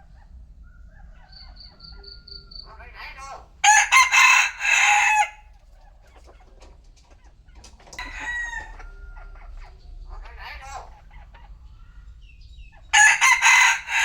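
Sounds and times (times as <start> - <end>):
rooster crowing: 0.6 - 2.8, 3.6 - 5.5, 8.0 - 9.7, 12.9 - 14.0
chicken call: 3.2 - 5.5, 12.9 - 14.0.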